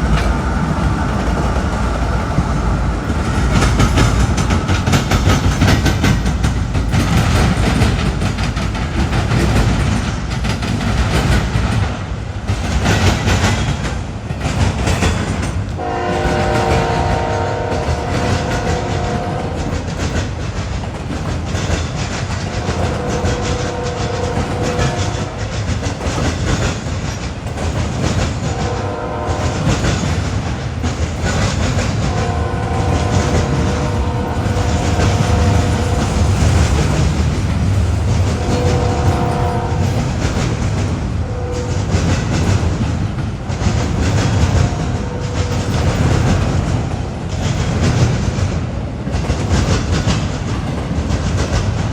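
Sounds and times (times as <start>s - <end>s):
freight train rumbling: 0.0s - 51.9s
train air horn: 15.8s - 19.7s, 22.5s - 25.6s, 28.4s - 30.5s, 31.4s - 37.1s, 38.1s - 42.5s, 44.2s - 46.6s.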